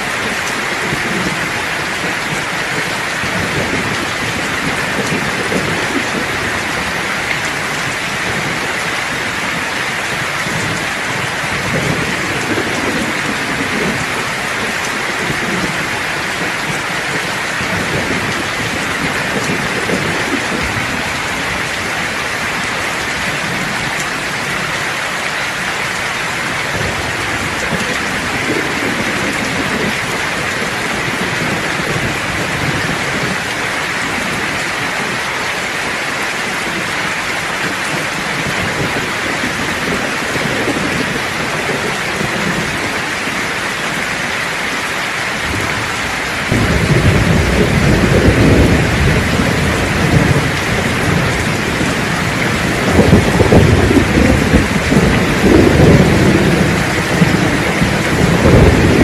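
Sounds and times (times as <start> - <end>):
steady rain: 0.0 - 59.0
low rolling thunder: 0.2 - 24.7, 26.0 - 35.3, 37.7 - 44.2, 45.4 - 59.0.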